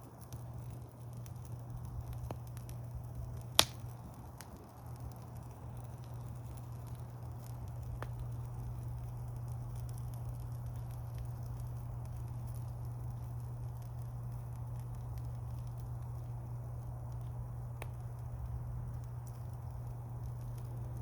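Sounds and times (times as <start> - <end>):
campfire crackling and popping: 0.0 - 21.0
low fire rumble: 0.0 - 21.0.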